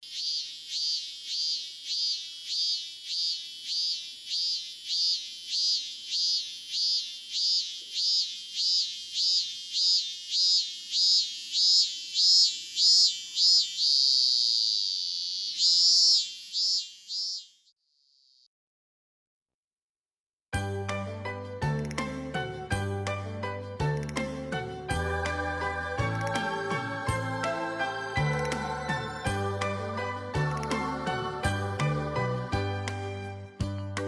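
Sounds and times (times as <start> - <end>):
cicada pulsing calls: 0.0 - 18.5.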